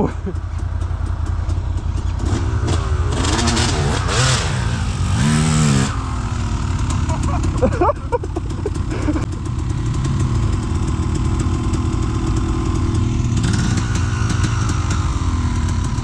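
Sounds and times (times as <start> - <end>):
quad bike engine revving: 0.0 - 16.0.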